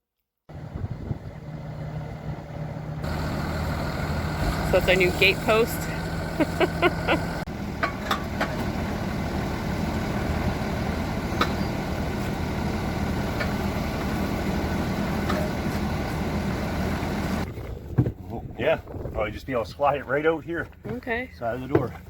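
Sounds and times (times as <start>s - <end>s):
engine idling: 0.5s - 17.5s.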